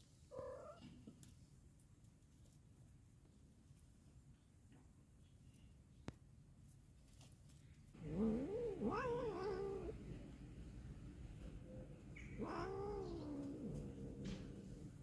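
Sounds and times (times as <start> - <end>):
cat meowing: 8.0 - 10.0, 12.2 - 13.8.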